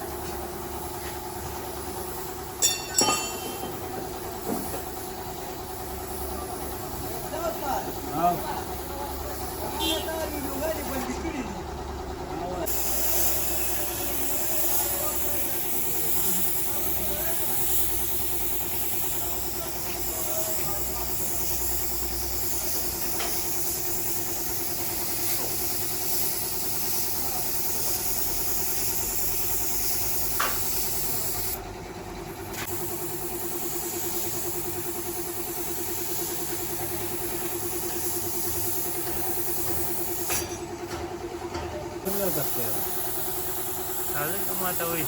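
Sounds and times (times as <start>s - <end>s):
air hissing: 12.6s - 31.6s, 32.5s - 40.6s, 42.0s - 45.0s.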